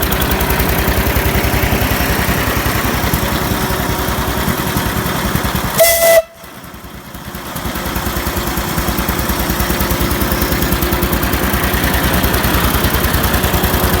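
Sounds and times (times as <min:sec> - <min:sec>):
engine running compressor: 0:00.0 - 0:14.0
loud whistle-like tone: 0:05.8 - 0:06.5.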